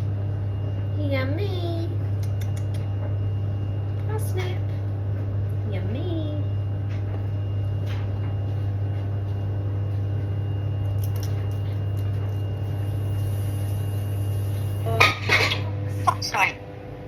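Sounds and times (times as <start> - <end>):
kitchen appliance humming: 0.0 - 17.0
faint nibbling ticks: 2.2 - 2.9.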